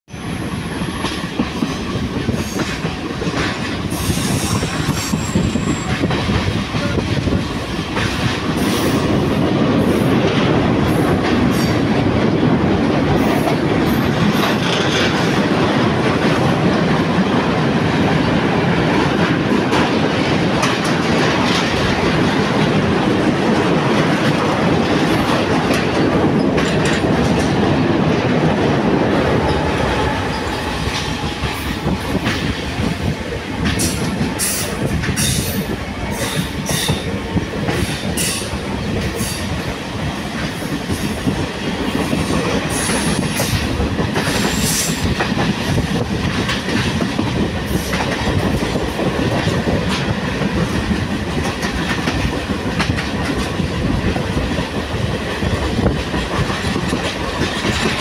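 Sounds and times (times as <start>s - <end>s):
train rumble: 0.1s - 58.0s
train wheels clacking over rail joints: 0.1s - 58.0s.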